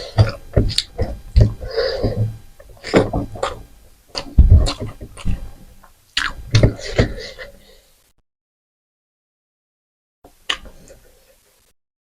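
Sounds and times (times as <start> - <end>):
person chewing and lip-smacking: 0.0 - 5.6, 6.2 - 7.2.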